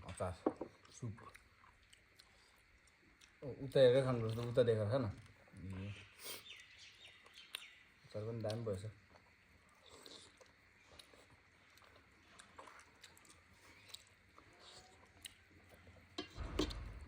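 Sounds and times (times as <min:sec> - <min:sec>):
person chewing food: 0:00.6 - 0:03.4, 0:05.2 - 0:07.8, 0:08.5 - 0:17.0
low hum: 0:16.3 - 0:17.0.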